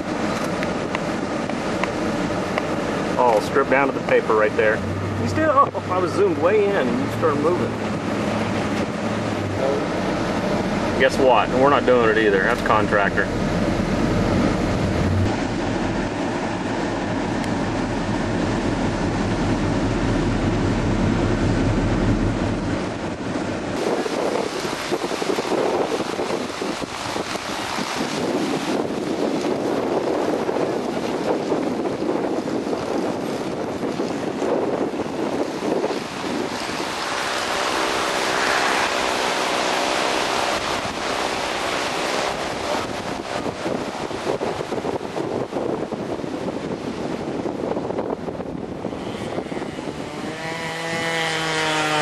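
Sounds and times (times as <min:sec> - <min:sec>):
low hum: 0:00.0 - 0:30.9
engine and road noise rumble: 0:00.0 - 0:52.0
strong wind on microphone: 0:00.0 - 0:52.0.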